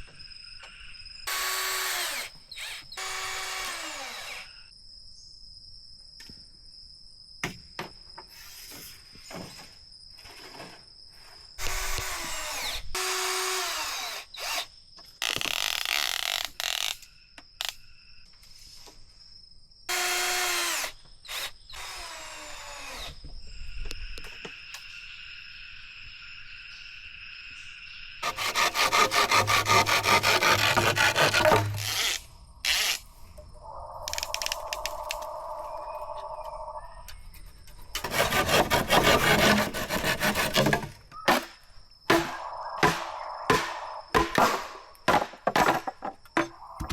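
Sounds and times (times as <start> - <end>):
power drill boring into bamboo: 1.3 - 4.6, 11.6 - 17.0, 19.9 - 23.2, 28.2 - 33.0
rapid rasping strokes on wood: 28.2 - 31.9, 38.0 - 40.8.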